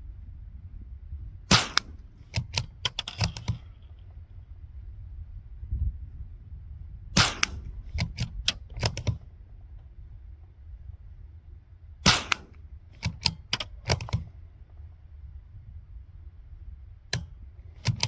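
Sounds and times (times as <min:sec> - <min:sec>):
suppressed rifle shots: 0:01.5 - 0:04.1, 0:07.2 - 0:09.3, 0:12.0 - 0:14.3.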